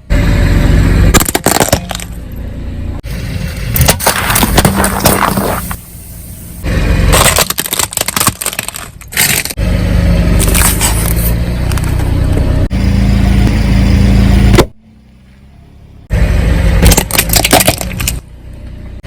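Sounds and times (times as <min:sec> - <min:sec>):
car engine running: 0:00.0 - 0:19.0
objects crushed under tyres: 0:01.1 - 0:02.2, 0:03.7 - 0:05.8, 0:07.1 - 0:09.6, 0:16.8 - 0:18.2.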